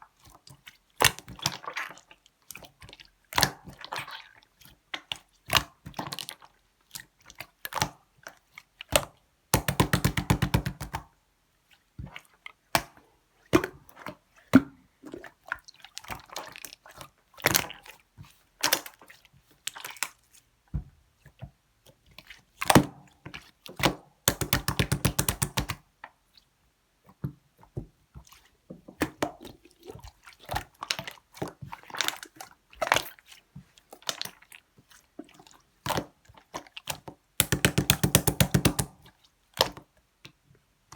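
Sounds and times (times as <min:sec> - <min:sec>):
rapid even clicks of slime: 0:24.3 - 0:25.8, 0:37.4 - 0:39.0.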